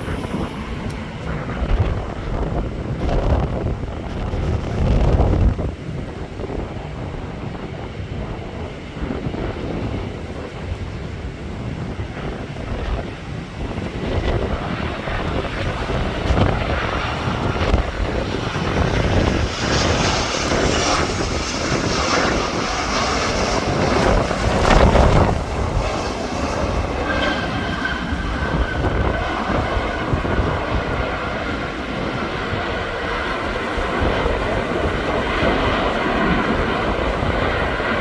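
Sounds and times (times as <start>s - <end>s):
faint thin whine: 0.0s - 3.2s
airliner engine rumbling: 0.0s - 38.0s.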